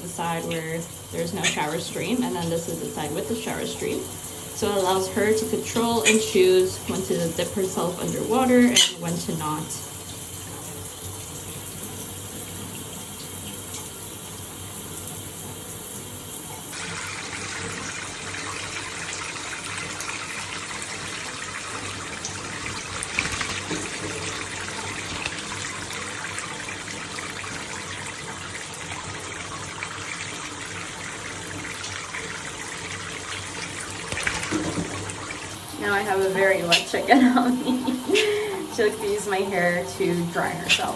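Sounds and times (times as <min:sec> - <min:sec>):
shower spray of water: 0:16.7 - 0:35.6.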